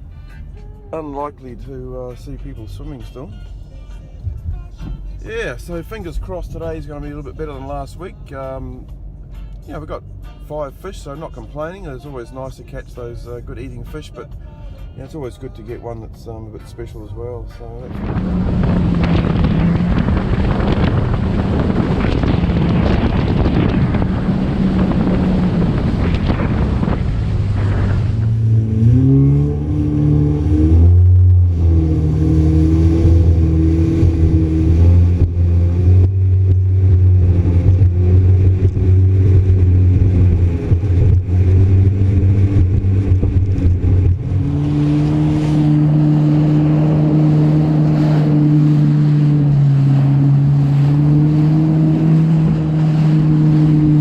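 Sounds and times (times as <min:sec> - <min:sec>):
jet ski engine: 0:13.2 - 0:54.0.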